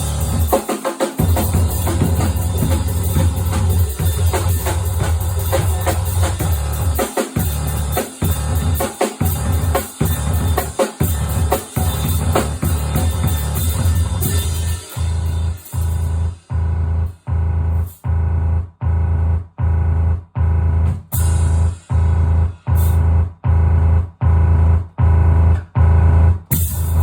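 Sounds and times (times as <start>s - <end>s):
dense drum hits: 1.2s - 18.2s.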